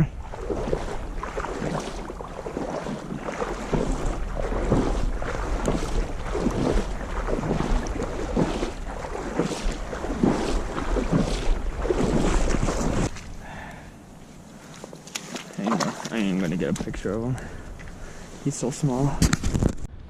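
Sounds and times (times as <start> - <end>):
wind buffeting microphone: 0.0 - 13.4
river water splashing: 0.0 - 19.2.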